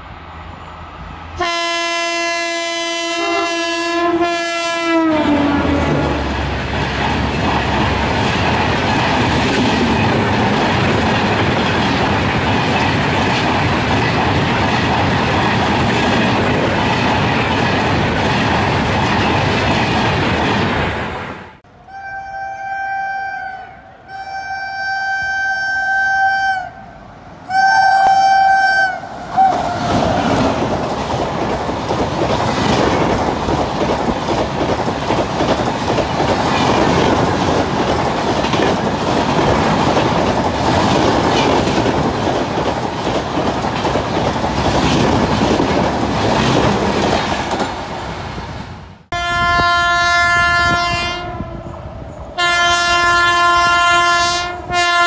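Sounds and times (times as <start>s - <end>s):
train wheels and coaches passing: 0.0s - 55.0s
locomotive horn: 1.4s - 6.4s, 21.7s - 30.0s, 49.1s - 51.7s, 52.4s - 55.0s
train horn: 1.4s - 6.4s, 21.7s - 30.0s, 49.1s - 51.7s, 52.4s - 55.0s.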